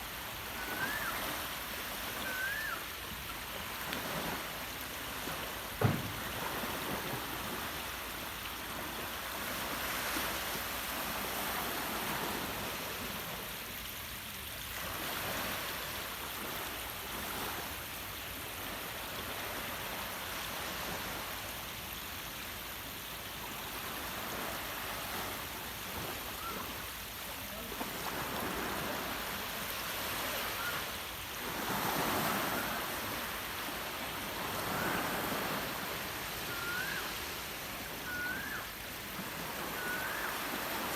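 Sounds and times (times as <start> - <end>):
sea waves washing on beach: 0.0 - 40.9
low thump: 5.8 - 6.3.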